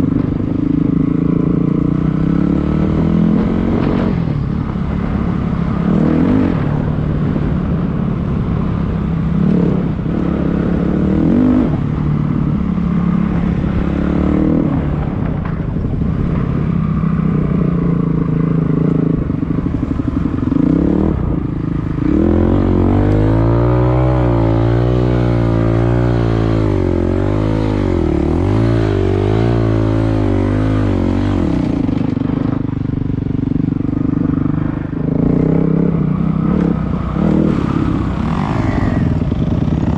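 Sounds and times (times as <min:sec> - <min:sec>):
dirt bike engine revving: 0:17.7 - 0:32.6, 0:33.8 - 0:39.9.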